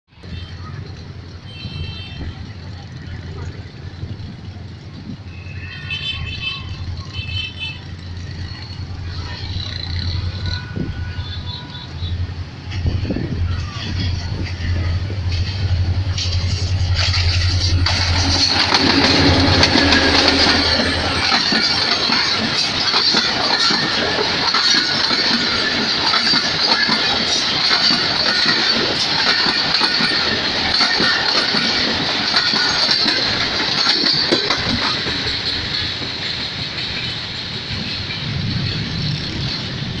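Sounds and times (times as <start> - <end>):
train wheels clattering over rail joints: 12.5 - 40.0.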